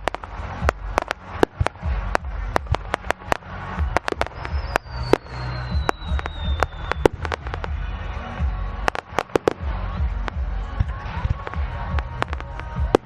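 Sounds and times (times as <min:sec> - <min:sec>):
fireworks bangs and crackles: 0:00.0 - 0:13.0
low rumble: 0:00.0 - 0:13.0
high whistle falling in pitch: 0:03.9 - 0:07.5.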